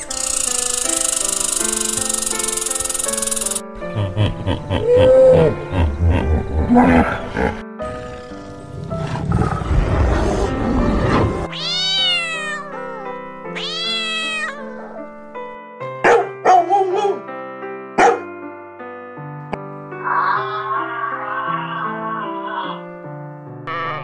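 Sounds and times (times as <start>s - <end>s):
background music: 0.0s - 24.0s
kitten meowing: 11.5s - 14.8s, 20.1s - 22.9s
dog barking sharply: 16.0s - 17.2s, 18.0s - 18.3s.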